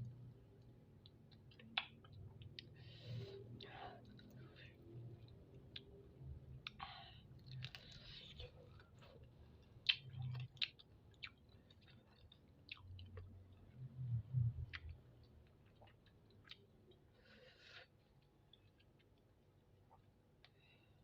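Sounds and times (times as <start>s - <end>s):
wet mouth clicks: 1.5s - 2.8s.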